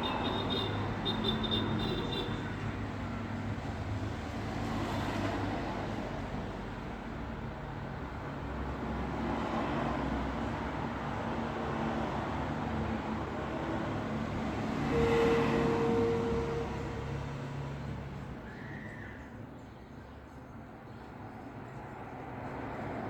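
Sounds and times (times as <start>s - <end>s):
road traffic passing: 0.0s - 23.0s
steady tone from passing vehicle: 12.4s - 18.4s.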